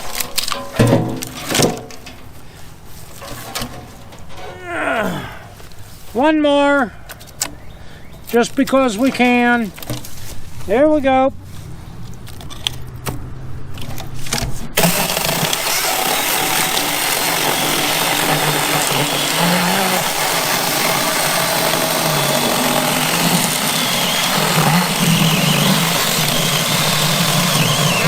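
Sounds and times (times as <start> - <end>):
chainsaw cutting through log: 14.8 - 28.0.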